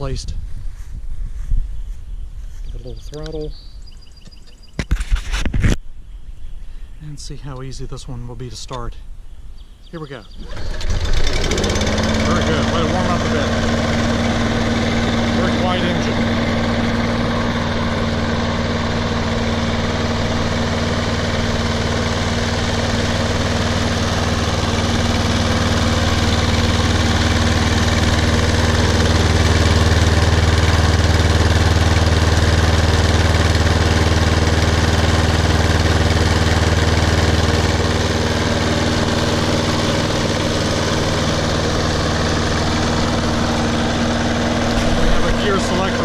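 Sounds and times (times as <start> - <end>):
lawn mower engine running: 10.0 - 46.0.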